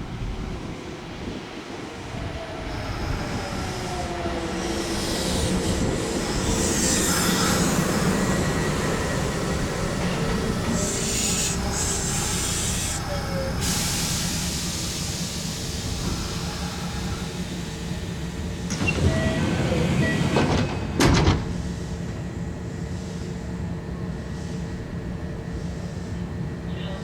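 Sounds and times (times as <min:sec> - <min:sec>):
electric train humming: 0:00.0 - 0:24.0
train doors sliding: 0:03.8 - 0:22.5
high air hiss: 0:04.6 - 0:09.8, 0:10.4 - 0:18.7.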